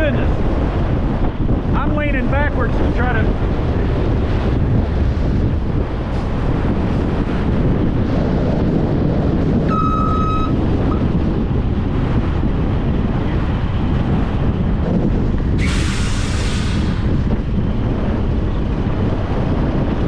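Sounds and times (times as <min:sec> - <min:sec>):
wind buffeting microphone: 0:00.0 - 0:20.0
short beep: 0:09.7 - 0:11.0.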